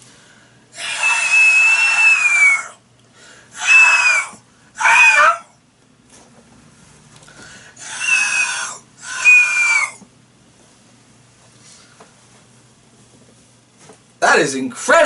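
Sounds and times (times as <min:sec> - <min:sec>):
person imitating hawk screech: 0:00.7 - 0:02.8, 0:03.5 - 0:05.5, 0:07.8 - 0:10.0.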